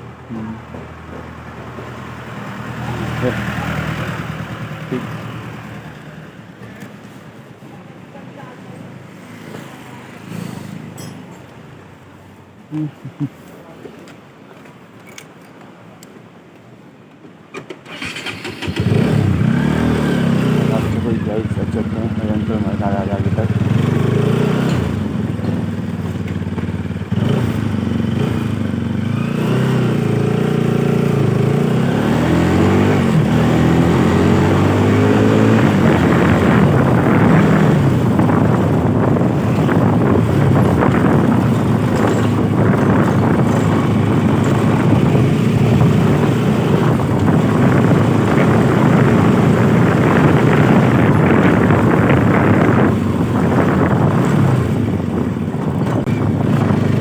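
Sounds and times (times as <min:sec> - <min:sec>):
motorcycle engine idling and revving: 0:00.0 - 0:06.9, 0:17.9 - 0:57.0
wind and road noise: 0:00.0 - 0:57.0.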